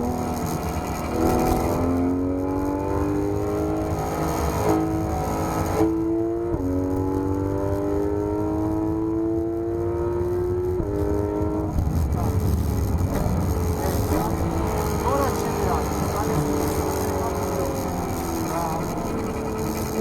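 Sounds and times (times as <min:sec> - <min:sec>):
gear upshifts: 0:00.0 - 0:06.1, 0:10.4 - 0:20.0
sports car engine revving high: 0:00.0 - 0:20.0.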